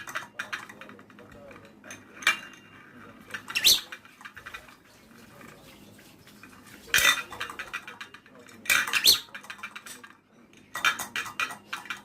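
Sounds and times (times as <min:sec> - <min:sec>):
bird chirp: 0:03.5 - 0:03.9, 0:09.0 - 0:09.4.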